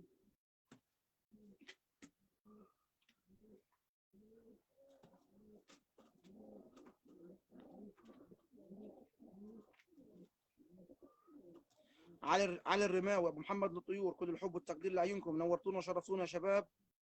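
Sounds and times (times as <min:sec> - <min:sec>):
faint pigeons cooing: 0:01.3 - 0:16.4.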